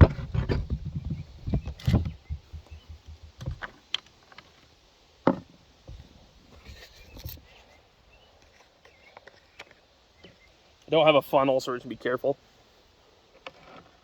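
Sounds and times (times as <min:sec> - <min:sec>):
handling clicks and knocks: 0:00.0 - 0:04.5.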